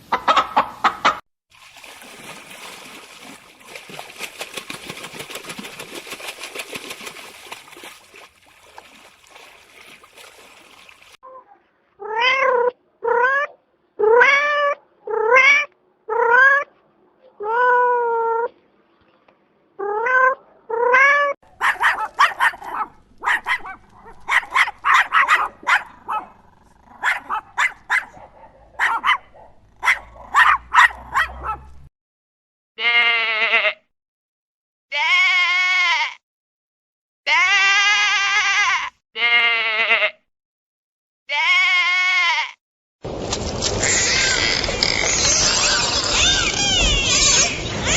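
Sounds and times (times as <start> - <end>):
dog barking: 21.6 - 26.4, 27.0 - 31.8
cat meowing: 45.5 - 47.9.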